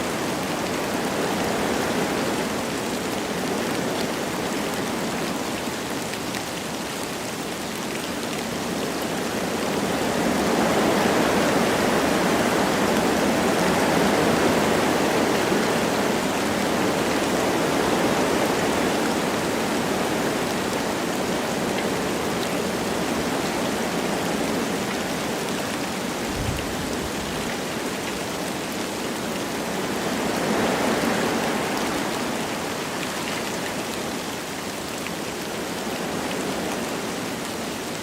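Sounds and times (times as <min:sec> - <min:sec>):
light rain falling: 0:00.0 - 0:38.0
wind blowing through trees: 0:00.0 - 0:38.0.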